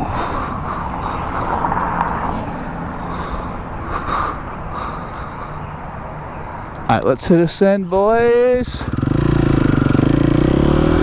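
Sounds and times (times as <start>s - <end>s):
wind and road noise: 0.0s - 11.0s
dirt bike engine running: 8.7s - 11.0s.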